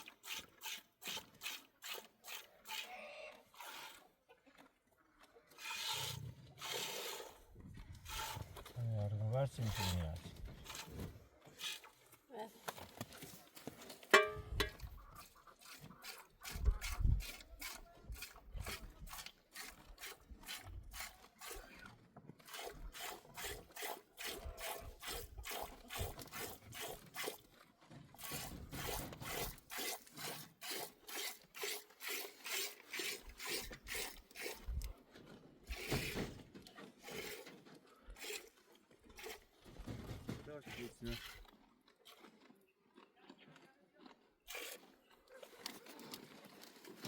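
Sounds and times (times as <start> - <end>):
milk squirting into a pail: 3.5 - 4.1, 5.5 - 8.8, 22.4 - 35.0, 35.7 - 36.4, 37.0 - 40.0.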